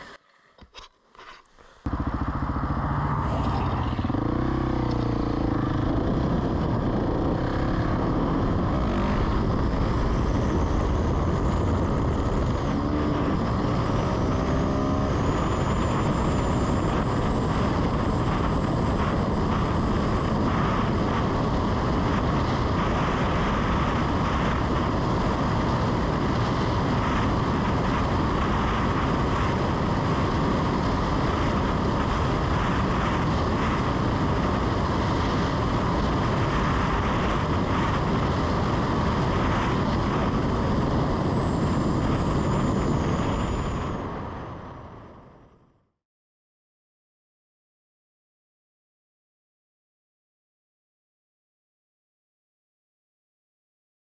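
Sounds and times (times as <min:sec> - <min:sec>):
wind rush: 0:01.8 - 0:45.5
motorcycle engine revving: 0:01.9 - 0:44.0.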